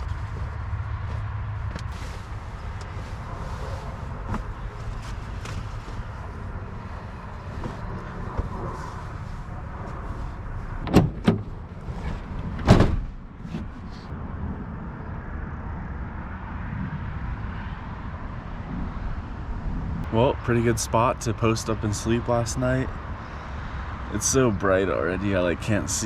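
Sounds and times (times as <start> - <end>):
steady low rumble: 0.0 - 26.0
truck door clunks: 10.8 - 11.6, 12.2 - 13.7.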